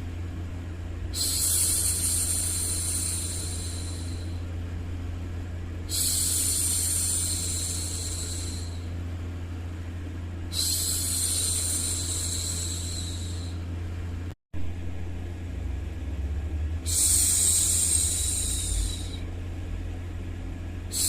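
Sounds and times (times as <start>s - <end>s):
steady low hum: 0.0s - 21.0s
woman shushing: 1.1s - 4.4s, 5.9s - 8.8s, 10.5s - 13.6s, 16.9s - 19.3s.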